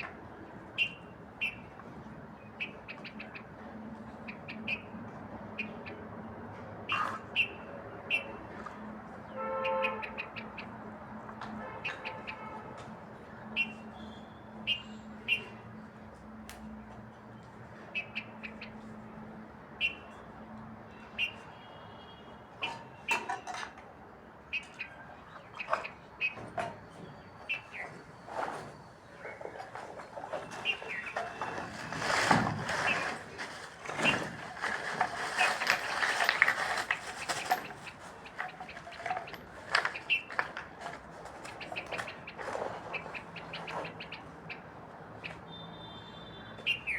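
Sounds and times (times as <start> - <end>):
clicks and clatter: 29.6 - 42.9.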